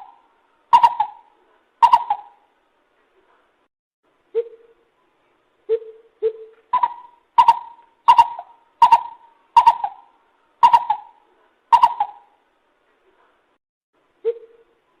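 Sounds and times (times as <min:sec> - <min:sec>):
bird calling hollow notes: 0:00.0 - 0:02.4, 0:05.7 - 0:12.4.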